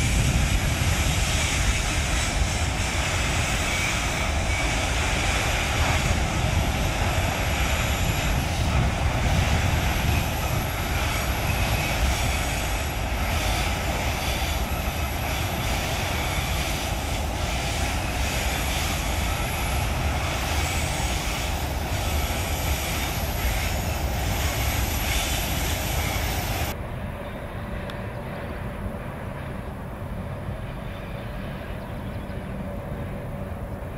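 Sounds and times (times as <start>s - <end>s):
freight train rumbling over viaduct: 0.0s - 33.9s.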